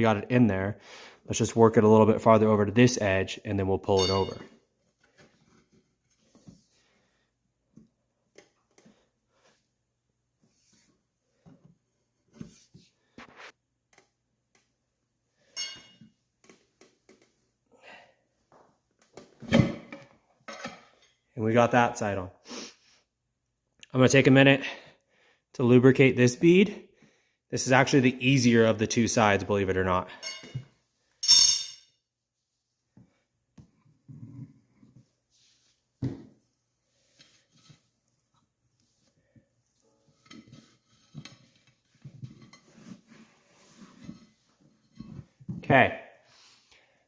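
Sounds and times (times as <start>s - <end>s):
ringing metallic clink: 15.6s - 16.0s, 30.2s - 30.6s, 31.2s - 32.0s.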